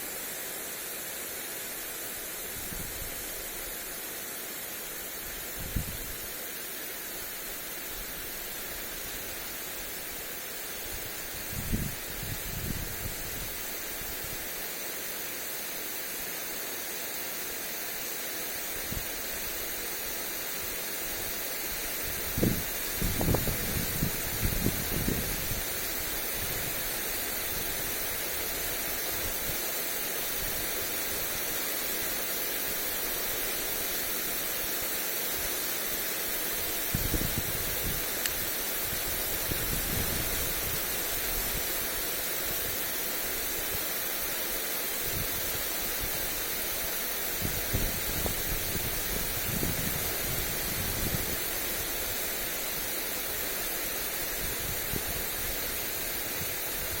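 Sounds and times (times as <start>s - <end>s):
sprinkler spray hissing: 0.0s - 57.0s
wind buffeting microphone: 5.6s - 6.2s, 11.4s - 13.5s, 22.1s - 25.7s, 36.9s - 38.1s, 47.4s - 51.5s.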